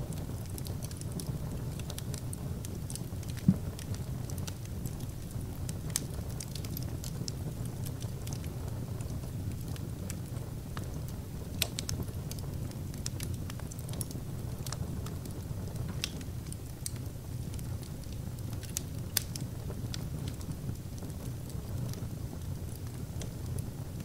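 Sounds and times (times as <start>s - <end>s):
wood fire crackling: 0.0s - 24.0s
sharp pops and snaps: 11.6s - 21.2s.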